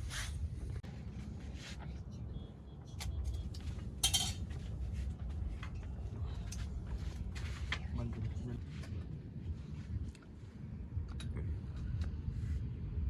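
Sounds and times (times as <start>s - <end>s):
low steady rumble: 0.0s - 13.0s
metal pots and utensils clinking: 4.0s - 4.5s.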